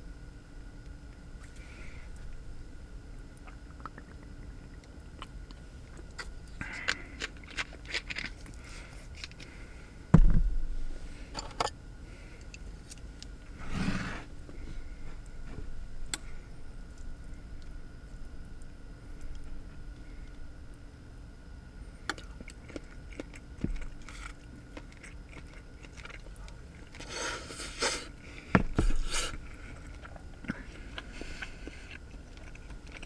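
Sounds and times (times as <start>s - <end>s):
faint steady hum: 0.0s - 33.0s
heavy thump: 10.1s - 10.6s
brief scrape: 13.6s - 14.3s.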